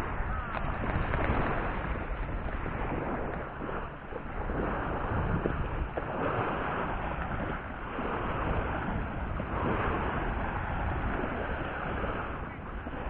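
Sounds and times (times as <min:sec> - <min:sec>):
water washing against kayak: 0:00.0 - 0:13.0
wind noise on microphone: 0:00.0 - 0:13.0.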